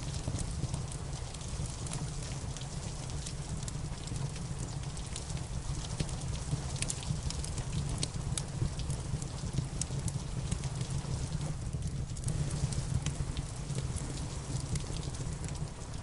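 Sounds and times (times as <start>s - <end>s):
wood fire crackling: 0.0s - 16.0s
steady low rumble: 10.2s - 16.0s
rain hissing: 10.5s - 16.0s.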